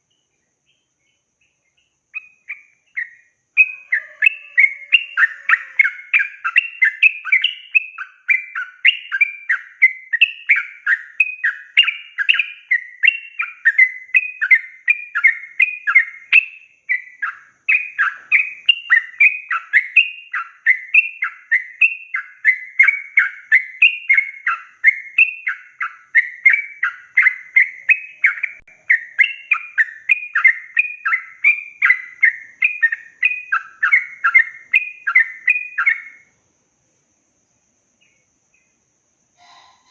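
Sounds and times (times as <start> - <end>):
bird chattering song: 0.0 - 36.3.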